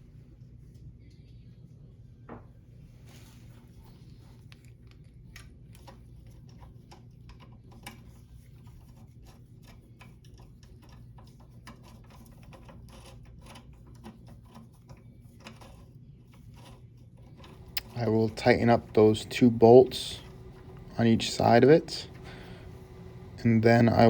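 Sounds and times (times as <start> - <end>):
steady low hum: 17.3 - 24.0.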